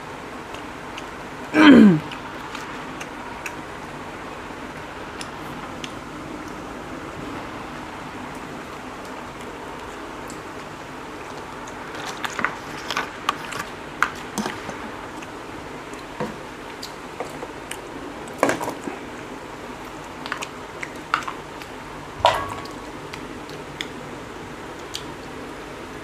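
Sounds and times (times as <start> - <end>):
wet chewing and lip smacks: 2.0 - 3.7, 5.1 - 6.6, 8.4 - 18.4.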